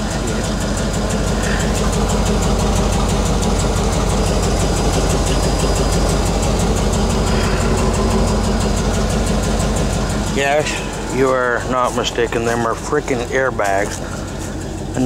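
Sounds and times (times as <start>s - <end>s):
pickup truck engine idling: 0.0s - 15.0s.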